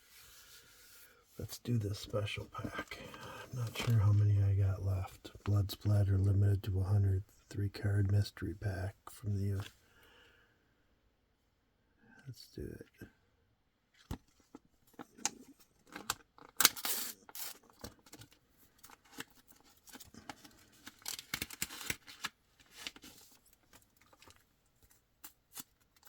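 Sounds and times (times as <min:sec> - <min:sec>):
clicks and rustles of handling: 0:01.6 - 0:06.4, 0:13.9 - 0:26.0
wrapper crinkling and tearing: 0:15.9 - 0:18.3, 0:18.9 - 0:24.4.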